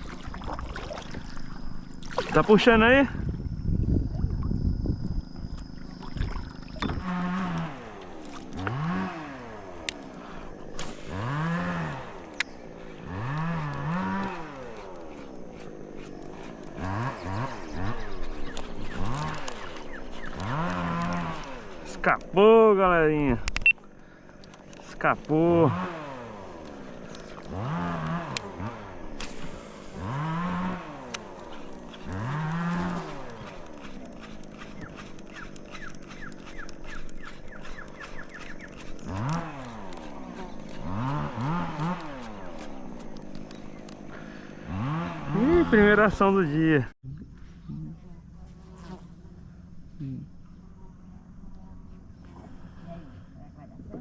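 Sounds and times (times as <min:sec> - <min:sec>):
sharp clicks: 0:23.4 - 0:23.8.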